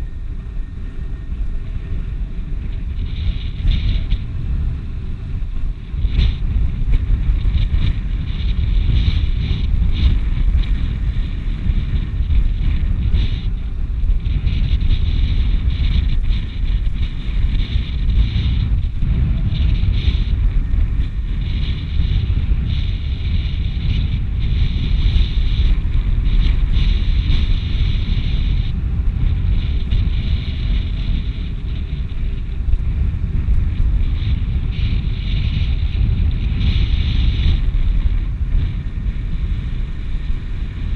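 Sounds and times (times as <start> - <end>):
strong wind buffeting microphone: 0.0 - 40.9.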